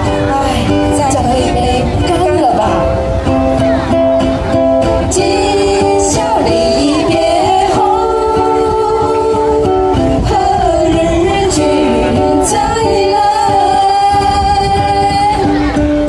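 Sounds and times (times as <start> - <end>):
ukuleles strumming: 0.0 - 16.0
person singing: 5.0 - 15.8.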